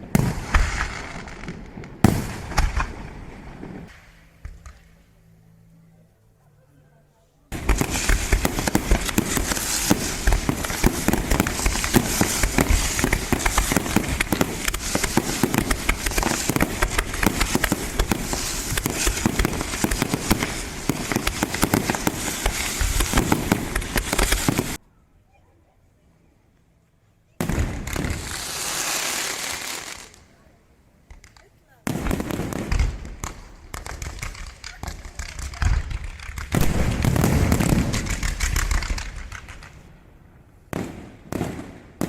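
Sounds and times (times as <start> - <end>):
fireworks banging and crackling: 0.0 - 5.0, 7.5 - 24.8, 27.4 - 30.4, 31.0 - 42.0.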